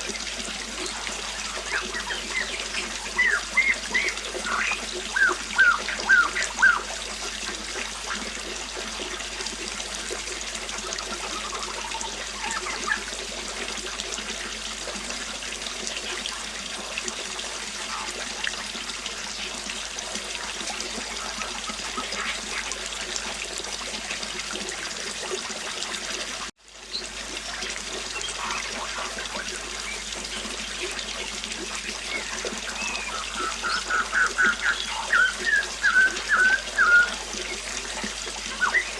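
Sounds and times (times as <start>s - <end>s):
river water flowing: 0.0s - 38.9s
bird chirps: 0.8s - 6.9s, 31.9s - 38.9s.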